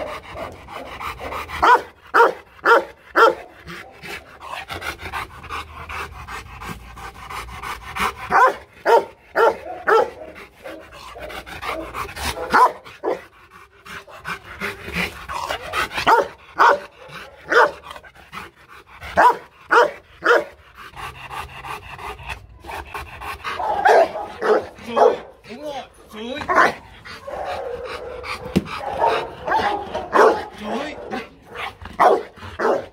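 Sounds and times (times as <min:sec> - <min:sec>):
dog barking deeply: 0:00.0 - 0:04.0, 0:08.3 - 0:13.2, 0:15.4 - 0:17.8, 0:19.2 - 0:20.6, 0:23.5 - 0:25.4, 0:26.5 - 0:32.9.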